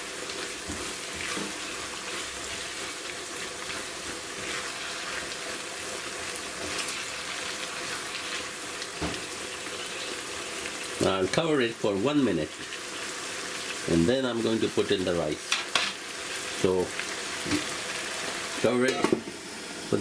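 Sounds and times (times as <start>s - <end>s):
vegetables sizzling in a wok: 0.0s - 20.0s.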